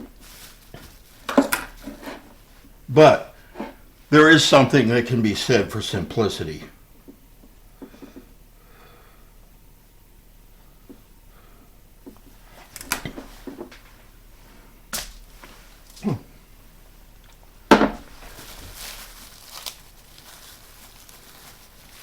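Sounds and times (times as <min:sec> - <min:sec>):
objects knocking on kitchen counter: 0:17.7 - 0:18.1.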